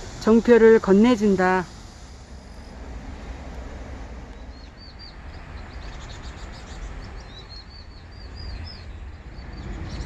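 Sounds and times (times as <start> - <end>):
low outdoor background noise: 0.0 - 10.0
small birds chirping: 4.2 - 10.0.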